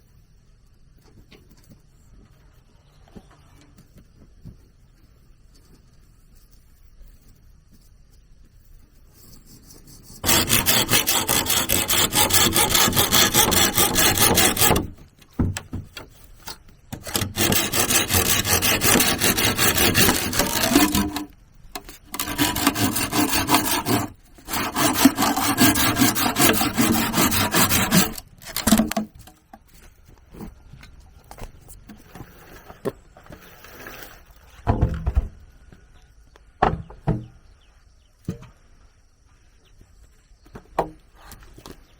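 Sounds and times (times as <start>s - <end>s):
hand tool rasping through wood: 9.4s - 15.0s, 16.0s - 29.3s.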